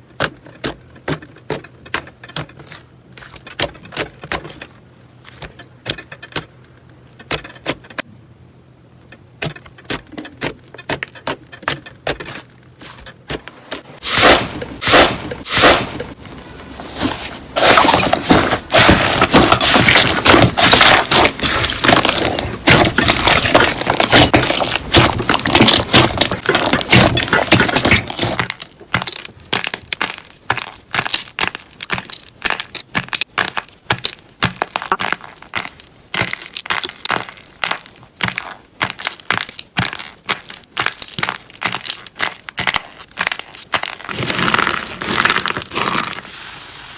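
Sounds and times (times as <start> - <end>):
slime squeezed popping and crackling: 18.7 - 46.2.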